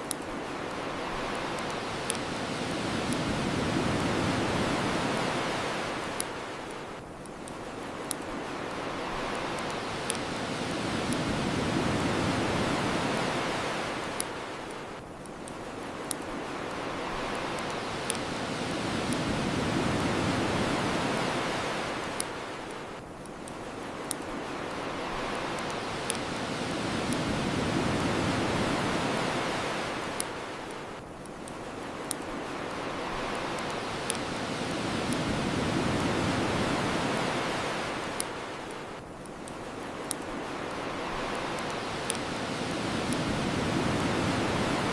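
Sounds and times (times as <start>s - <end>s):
bonfire crackling and popping: 0.0s - 44.9s
ocean waves washing on shore: 0.0s - 44.9s.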